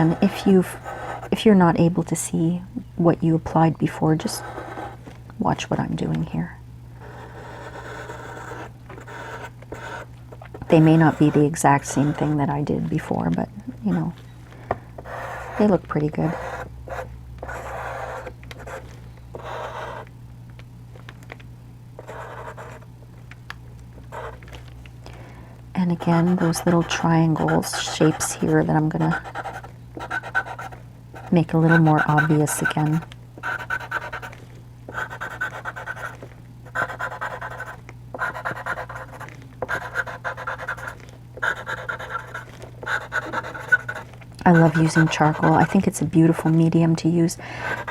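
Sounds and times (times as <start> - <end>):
pencil scratching on paper: 0.0 - 1.4, 4.2 - 5.0, 7.0 - 12.4, 15.0 - 18.8, 19.4 - 20.0, 22.0 - 22.8, 24.1 - 24.4, 26.0 - 46.5, 47.7 - 47.9
low steady hum: 0.0 - 47.9.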